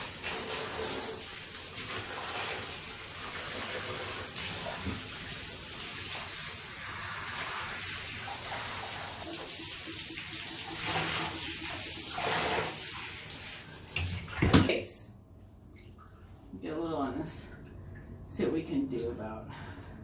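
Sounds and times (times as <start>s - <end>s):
shower head spraying water: 5.2s - 13.7s.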